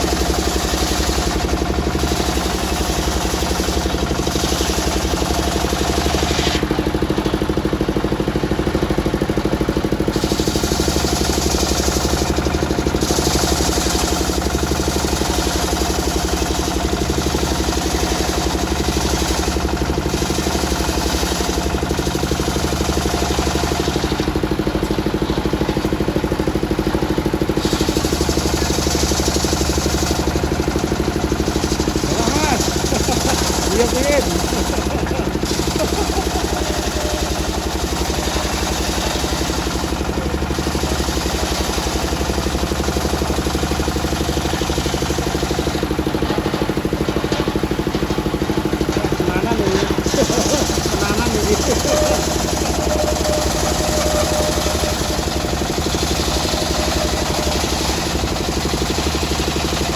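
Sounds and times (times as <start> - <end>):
circular sawmill running: 0.0 - 59.9.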